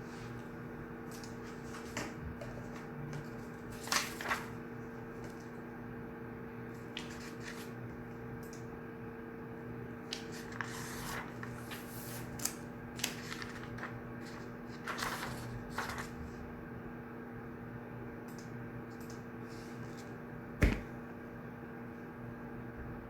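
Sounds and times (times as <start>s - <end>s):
paper rustling: 1.0s - 5.6s, 6.8s - 7.8s, 10.0s - 16.4s.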